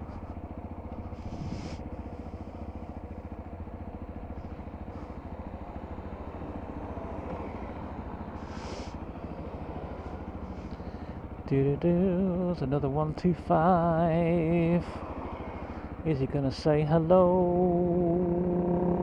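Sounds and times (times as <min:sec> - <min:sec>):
motorcycle engine drone: 0:00.0 - 0:19.0
wind rushing noise: 0:01.2 - 0:01.8.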